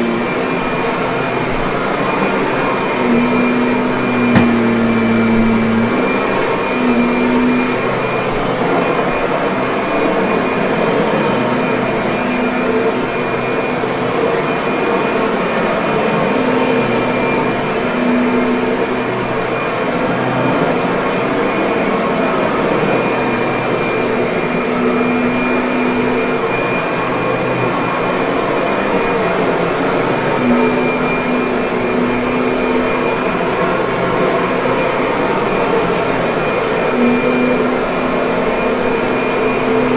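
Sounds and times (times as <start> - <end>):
vacuum cleaner motor running: 4.2 - 5.8.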